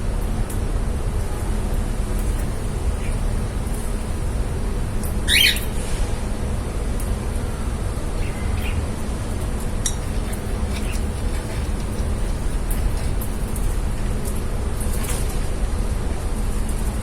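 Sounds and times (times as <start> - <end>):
lovebird squawk: 5.2 - 5.8
faint bird chirps: 5.3 - 5.7.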